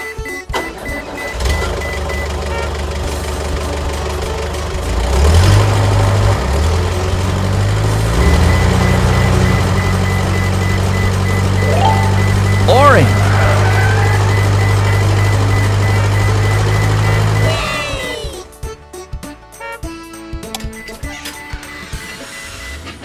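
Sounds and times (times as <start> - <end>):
cartoon engine hum: 10.7 - 18.4.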